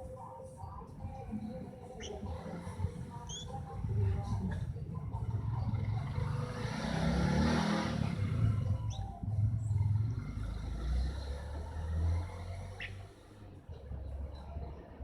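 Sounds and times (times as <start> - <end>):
high chirps: 1.8 - 3.9, 8.4 - 10.5
vehicle engine passing: 1.9 - 14.5.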